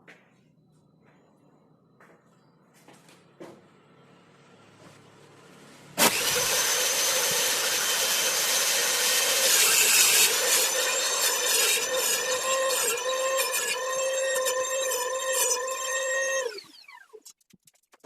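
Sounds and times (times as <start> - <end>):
power saw cutting wood: 6.0 - 17.2.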